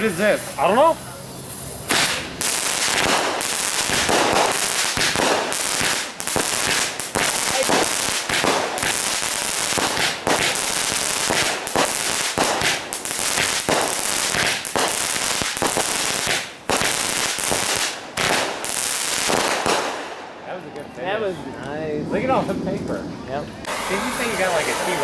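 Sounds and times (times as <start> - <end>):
firecrackers going off: 0.0 - 21.0, 22.0 - 25.0.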